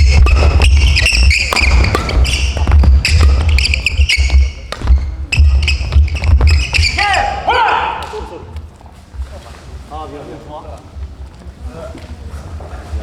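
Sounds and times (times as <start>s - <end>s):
racket striking shuttlecock: 0.0s - 7.0s
shoes squeaking on gym floor: 0.0s - 7.5s.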